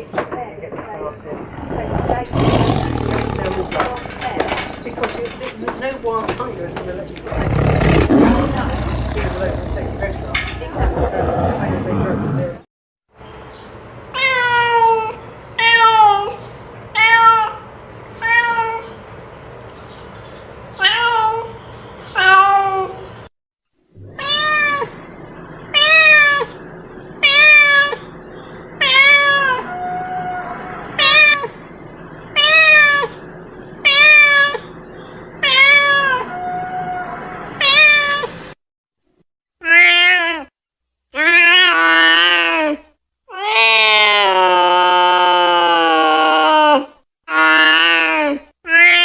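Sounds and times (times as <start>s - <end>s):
cat meowing: 24.2s - 24.9s, 27.2s - 28.1s, 28.8s - 31.6s, 33.8s - 34.7s, 35.4s - 38.3s.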